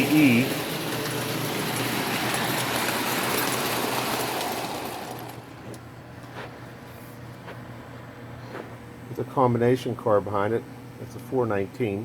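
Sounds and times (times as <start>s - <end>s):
toy train rumbling on track: 0.0s - 5.6s.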